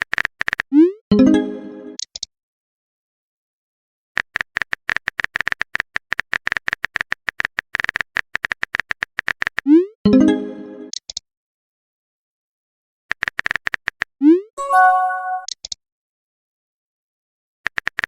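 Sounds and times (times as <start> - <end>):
message chime: 1.1 - 2.0, 14.6 - 15.5
phone keyboard typing clicks: 13.1 - 14.1, 17.7 - 18.0.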